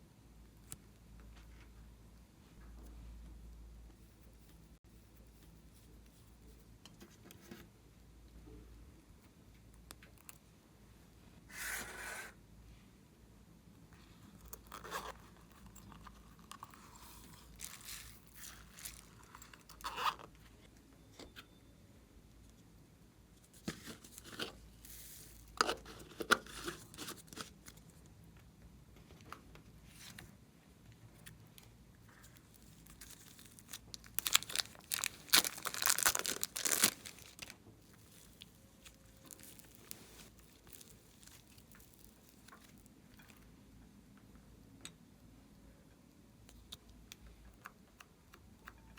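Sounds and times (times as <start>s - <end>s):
slime crackling and popping: 32.9s - 42.7s.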